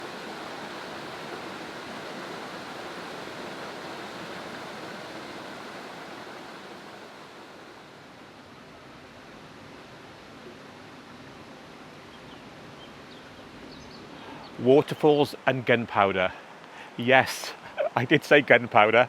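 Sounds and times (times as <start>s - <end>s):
waterfall rushing: 0.0s - 8.5s.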